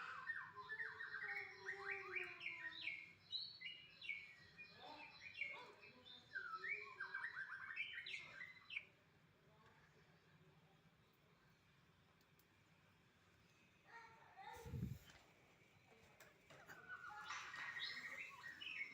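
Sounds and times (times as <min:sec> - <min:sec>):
bird singing whistled notes: 0:00.0 - 0:08.9, 0:17.0 - 0:18.9.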